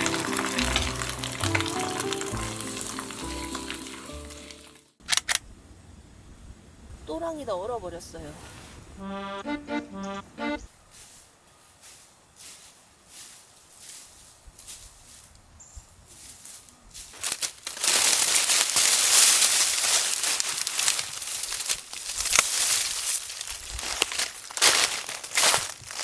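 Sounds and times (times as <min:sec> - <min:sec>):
crunching footsteps: 0:00.0 - 0:04.8, 0:16.1 - 0:26.0
loud rustling and crackling: 0:00.0 - 0:05.3, 0:17.0 - 0:26.0.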